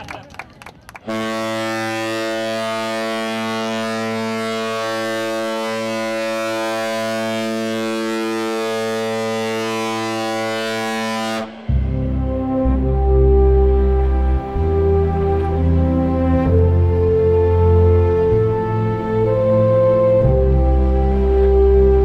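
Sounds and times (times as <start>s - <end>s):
ship's horn low blast: 1.0s - 22.0s
music: 11.5s - 22.0s.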